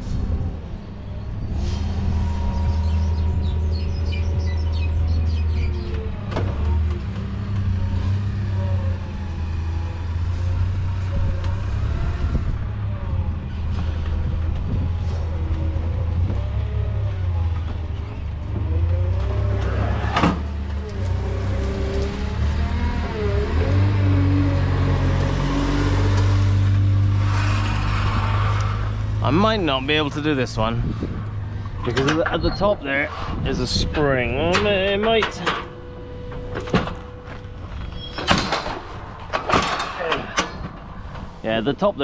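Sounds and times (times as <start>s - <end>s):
vehicle engine rumbling: 0.0s - 42.0s.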